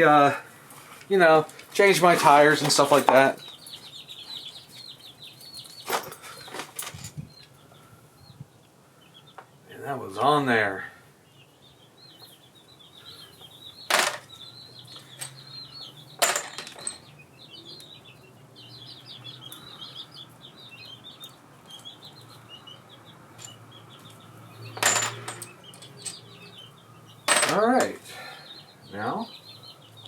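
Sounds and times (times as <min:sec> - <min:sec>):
small birds twittering: 0:00.0 - 0:30.0
metal tools clinking: 0:05.4 - 0:07.2, 0:13.9 - 0:15.5, 0:16.2 - 0:17.1, 0:23.4 - 0:26.5, 0:27.3 - 0:28.0.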